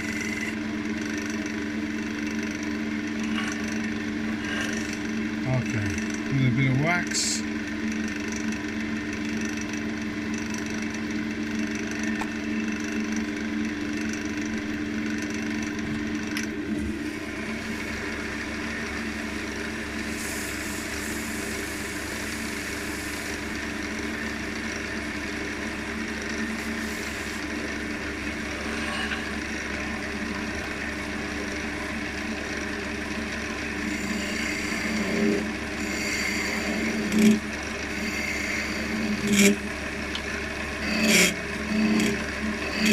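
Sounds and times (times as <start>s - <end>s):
wax scraping on spinning wood: 0.0s - 1.4s, 2.0s - 8.6s, 17.4s - 42.9s
wood lathe motor humming: 0.0s - 42.9s.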